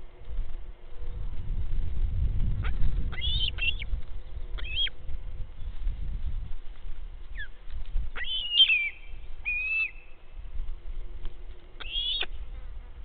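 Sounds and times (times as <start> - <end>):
low steady rumble: 0.0 - 13.0
high chirping calls: 3.1 - 3.8, 8.2 - 10.2, 11.8 - 12.4.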